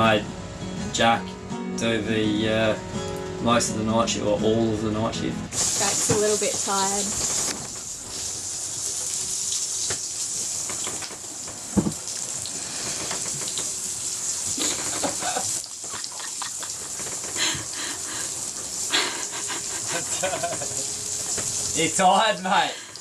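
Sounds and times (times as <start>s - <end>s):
rushing hissing noise: 5.5s - 23.0s.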